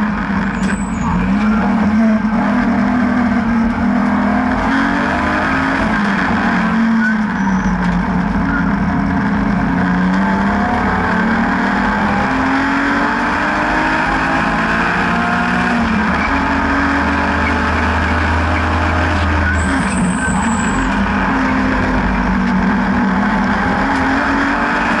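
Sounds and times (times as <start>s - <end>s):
car engine pulling hard: 0.0s - 25.0s.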